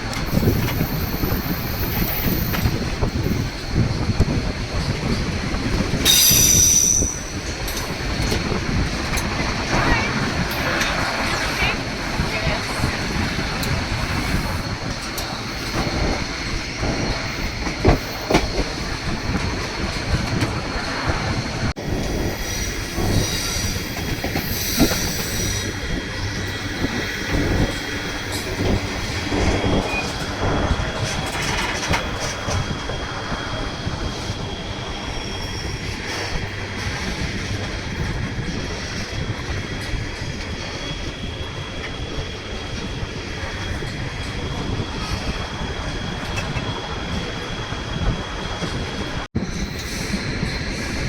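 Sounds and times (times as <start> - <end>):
train wheels rumbling on rails: 0.0 - 51.0
high wheel squeal: 6.0 - 7.5.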